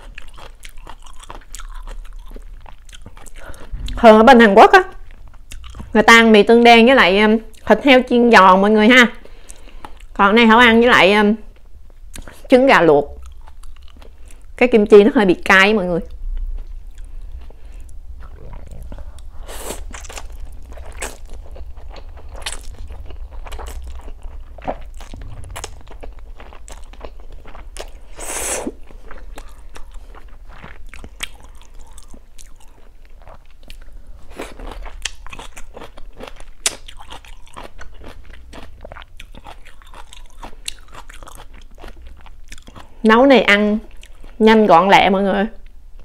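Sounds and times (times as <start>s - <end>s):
crunchy chewing: 0.0s - 4.0s, 4.9s - 6.0s, 13.2s - 14.5s, 16.4s - 43.0s
wet mouth sounds: 0.5s - 4.1s, 4.9s - 6.0s, 16.4s - 32.7s.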